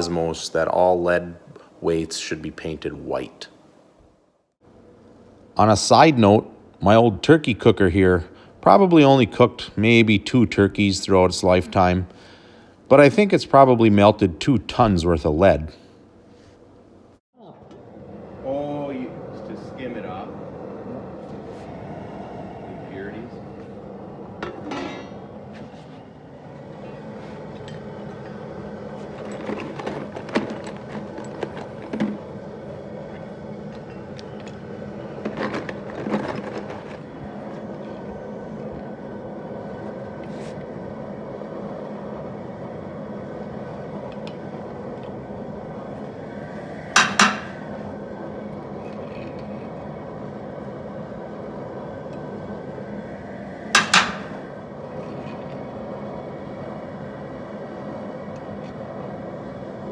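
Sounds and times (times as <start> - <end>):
gas burner roaring: 0.0 - 3.6, 4.5 - 16.5, 17.4 - 59.9
metal ladle clinking against pot: 47.0 - 47.6, 53.8 - 54.4.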